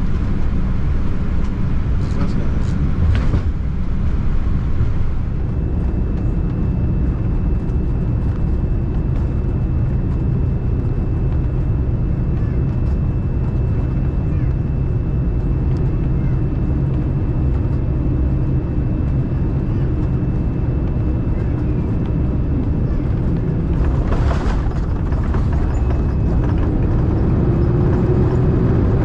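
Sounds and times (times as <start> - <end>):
aircraft engine and airflow rumble: 0.0 - 29.0.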